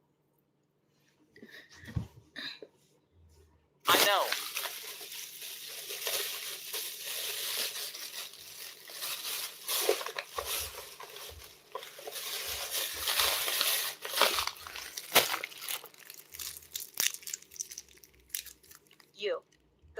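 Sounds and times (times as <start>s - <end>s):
rustling and crinkling: 3.9s - 19.6s.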